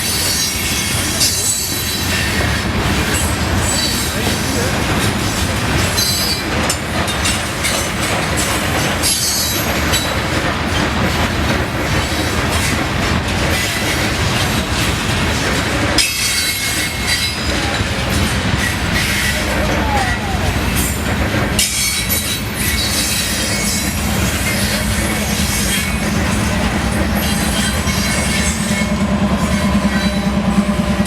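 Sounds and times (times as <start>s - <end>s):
train wheels on rails: 0.0s - 31.0s
high wheel squeals: 3.2s - 4.6s, 21.6s - 30.8s.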